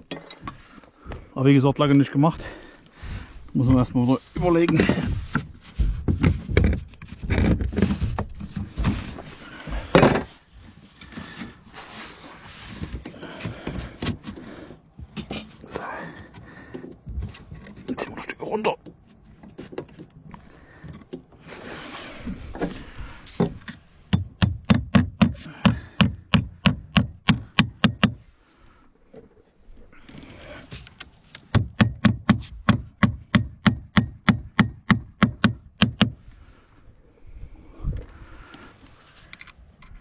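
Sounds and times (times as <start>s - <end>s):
soft scraping: 21.4s - 24.0s
hammer driving nails: 24.1s - 28.2s, 31.5s - 36.2s.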